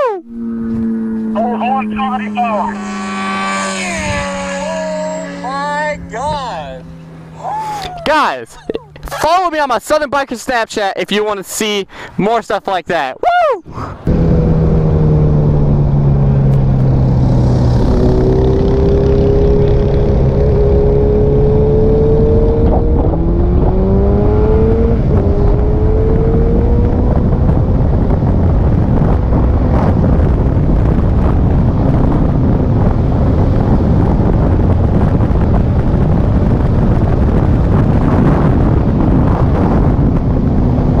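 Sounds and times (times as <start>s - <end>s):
motorcycle engine accelerating: 0.0s - 9.3s, 14.0s - 41.0s
wind noise on microphone: 2.0s - 7.0s, 13.7s - 41.0s.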